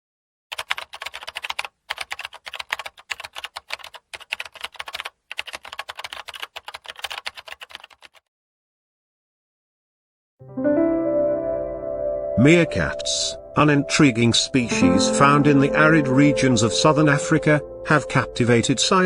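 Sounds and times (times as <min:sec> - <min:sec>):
rapid typing on keyboard: 0:00.5 - 0:08.3.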